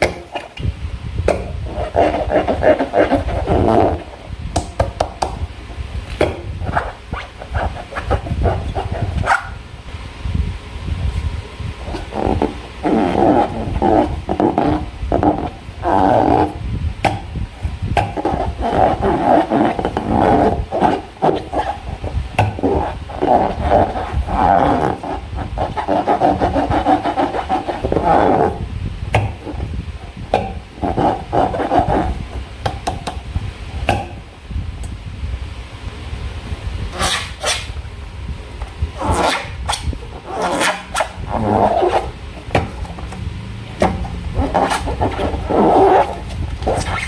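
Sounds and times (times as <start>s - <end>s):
rubber balloon squeaking: 0.0s - 5.4s, 6.2s - 9.7s, 11.8s - 29.8s, 30.4s - 32.4s, 36.9s - 37.8s, 38.9s - 43.1s, 43.8s - 47.0s.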